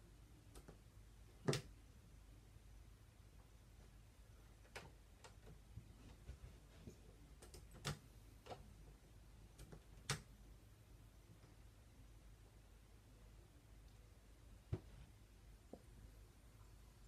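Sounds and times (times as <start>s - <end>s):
faint room hum: 0.0s - 17.0s
faint clicks and taps: 0.4s - 1.7s, 3.8s - 10.3s, 14.6s - 16.0s.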